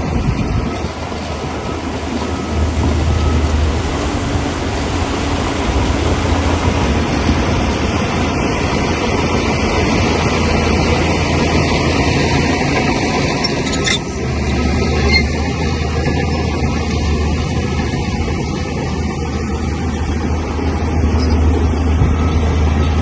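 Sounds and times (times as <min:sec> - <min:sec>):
bulldozer diesel engine running: 0:00.0 - 0:23.0
steel tracks clattering: 0:08.7 - 0:22.1.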